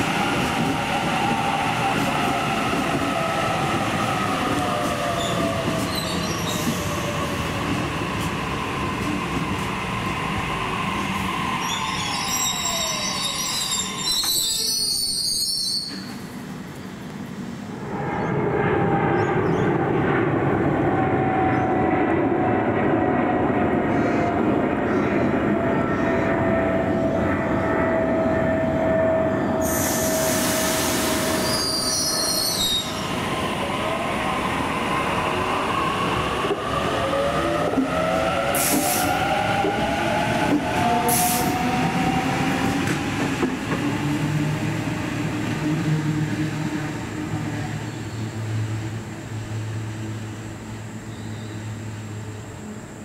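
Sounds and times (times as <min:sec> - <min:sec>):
train whine: 0:00.0 - 0:53.0
sharp hiss of air: 0:29.6 - 0:31.6.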